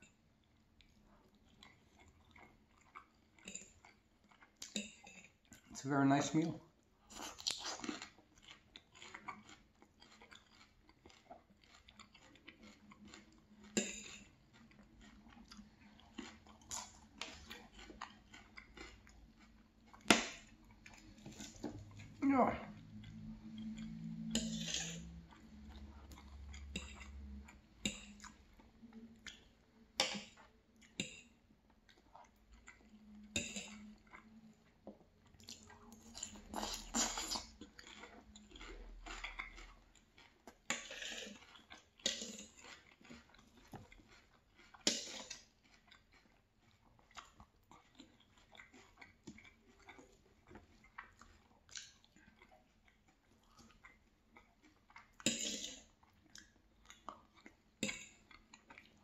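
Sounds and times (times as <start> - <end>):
person chewing food: 0.0 - 59.0
knife and fork scraping a plate: 24.3 - 25.2, 55.3 - 55.9.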